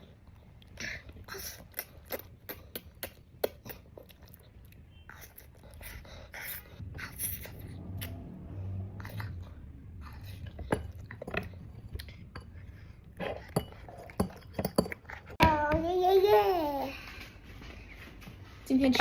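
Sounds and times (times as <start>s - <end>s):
child chewing: 0.0s - 15.4s
utensil clinking on dish: 13.3s - 15.0s.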